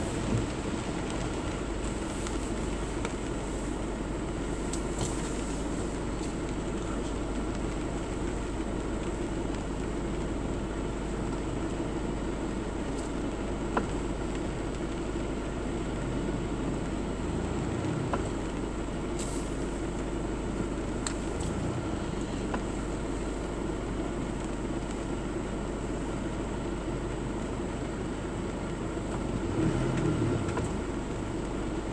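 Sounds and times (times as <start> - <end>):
car running noise: 0.0 - 31.9.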